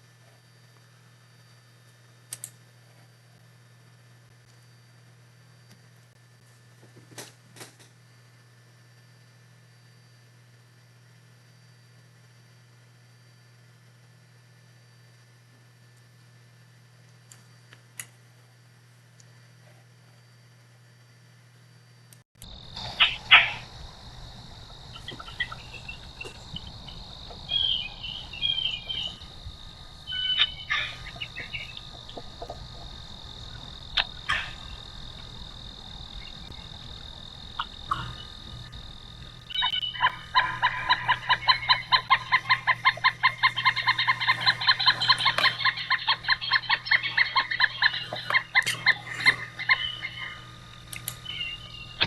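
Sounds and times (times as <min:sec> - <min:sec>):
woodpecker calling: 0:22.4 - 0:52.0
high-pitched drone: 0:22.5 - 0:50.5
short bird chirps: 0:51.2 - 0:52.0.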